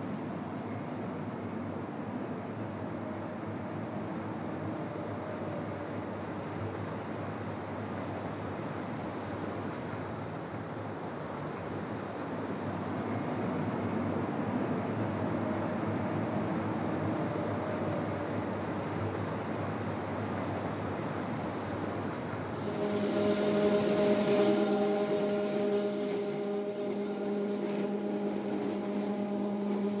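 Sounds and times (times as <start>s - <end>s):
electric train rushing rumble: 0.0s - 30.0s
steady multi-tone hum: 0.0s - 30.0s
hiss: 22.3s - 30.0s.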